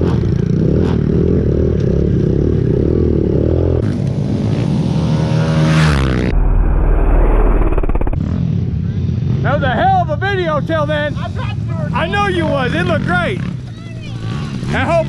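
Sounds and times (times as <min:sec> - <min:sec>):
heavy low rumble: 0:03.7 - 0:09.4.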